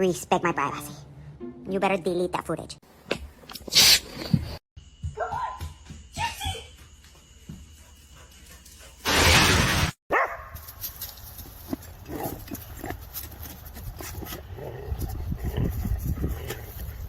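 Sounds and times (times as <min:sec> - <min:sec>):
loud burst of noise: 0:09.0 - 0:10.0.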